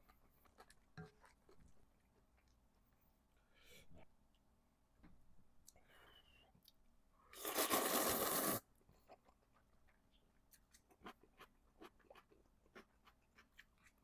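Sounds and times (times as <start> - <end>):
slurping noodles: 7.3 - 8.7.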